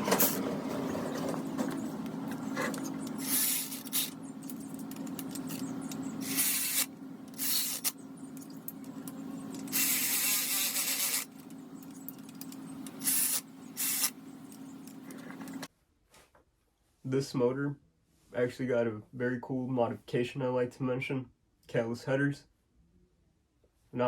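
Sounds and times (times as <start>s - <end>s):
steady low hum: 0.0s - 15.7s.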